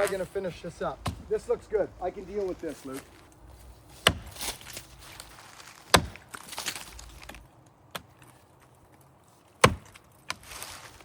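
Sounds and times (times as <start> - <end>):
axe chopping tree trunk: 0.9 - 1.6, 3.9 - 8.3, 9.6 - 10.6.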